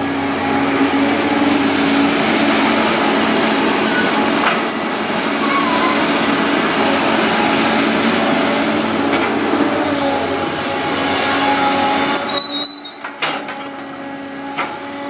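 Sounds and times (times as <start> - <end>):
diesel engine running under load: 0.0 - 15.0
brief high squeal: 3.8 - 6.2, 12.1 - 13.1.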